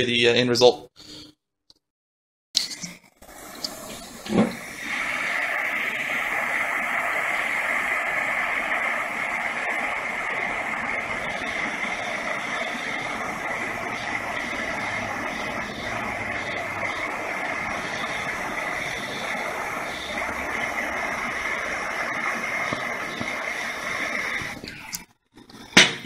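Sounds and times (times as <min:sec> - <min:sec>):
torch flame hissing: 0:03.0 - 0:26.0
torch ignition click and thump: 0:03.6 - 0:04.7.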